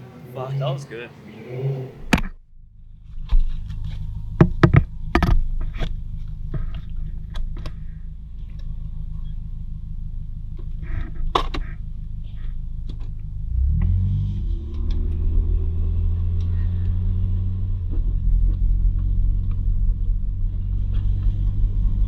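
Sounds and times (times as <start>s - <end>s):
car engine idling: 1.9s - 22.0s
sharp clicks and knocks: 2.1s - 2.4s, 3.1s - 7.8s, 10.6s - 11.8s.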